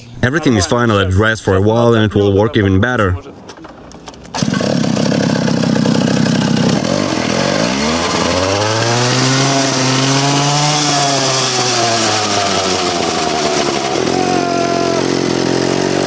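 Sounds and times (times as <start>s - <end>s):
two-stroke engine revving: 4.3s - 16.0s.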